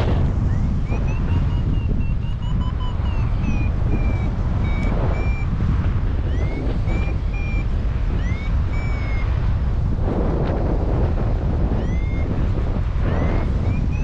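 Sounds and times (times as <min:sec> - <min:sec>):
wind buffeting microphone: 0:00.0 - 0:14.0
variometer high beeps: 0:00.4 - 0:09.4, 0:11.7 - 0:12.4, 0:13.0 - 0:14.0.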